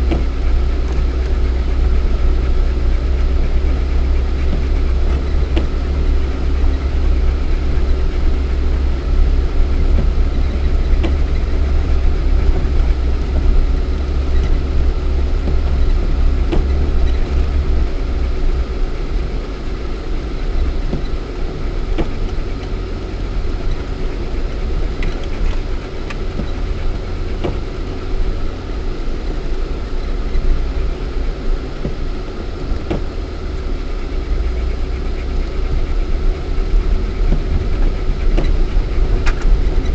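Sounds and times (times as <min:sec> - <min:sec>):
engine and drivetrain rumble: 0:00.0 - 0:39.9.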